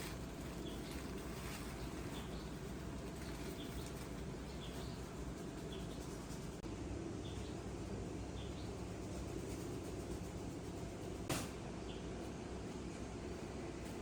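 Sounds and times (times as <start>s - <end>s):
pigeons stirring: 0.0s - 6.6s.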